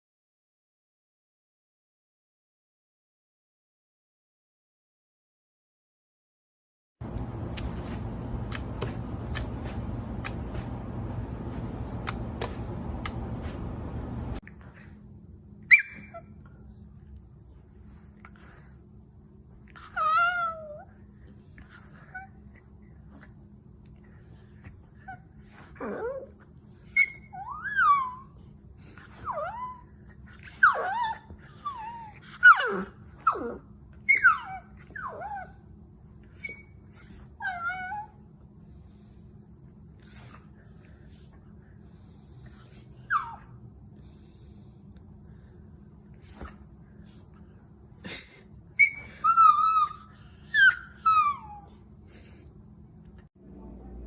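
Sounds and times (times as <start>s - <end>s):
steady hum: 7.0s - 15.6s, 52.0s - 54.0s
dog whining: 15.6s - 18.0s, 19.7s - 21.0s, 21.6s - 23.3s, 24.0s - 38.3s, 40.0s - 41.6s, 42.4s - 43.6s, 46.1s - 52.3s.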